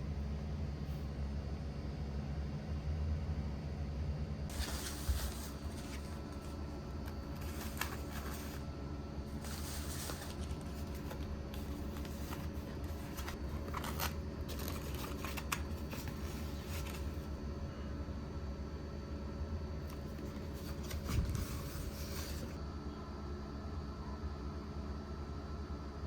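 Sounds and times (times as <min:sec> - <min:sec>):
steady low hum: 0:00.0 - 0:26.0
handling rustling and scraping: 0:04.5 - 0:17.8, 0:19.8 - 0:22.6.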